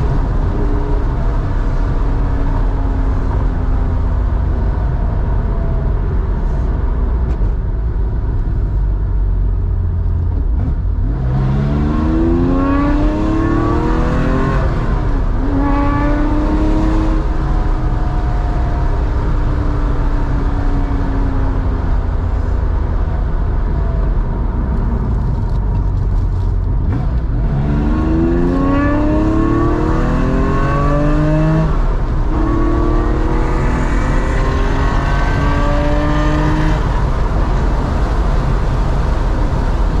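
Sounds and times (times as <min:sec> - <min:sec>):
car engine revving through gears: 0:10.4 - 0:20.8, 0:24.1 - 0:39.6.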